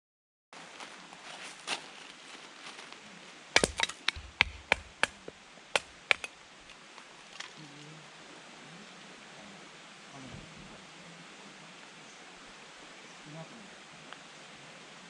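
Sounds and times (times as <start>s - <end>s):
sharp knocks: 3.6s - 6.3s.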